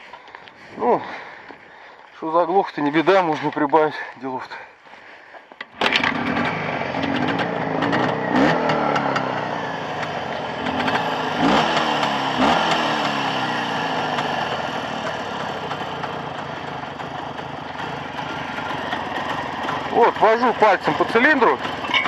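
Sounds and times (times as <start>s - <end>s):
motorcycle engine revving and idling: 5.7s - 22.0s.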